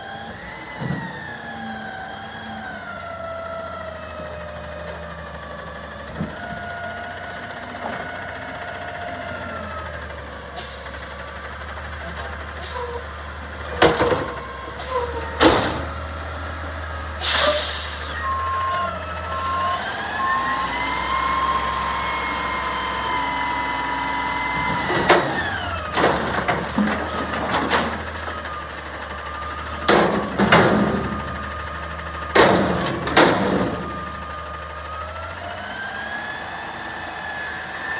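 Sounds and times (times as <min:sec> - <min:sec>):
garbage truck engine running: 0:00.0 - 0:37.9
air brake hiss: 0:17.0 - 0:18.3
reversing beeps: 0:17.4 - 0:21.9
loud metal bangs: 0:29.8 - 0:34.1.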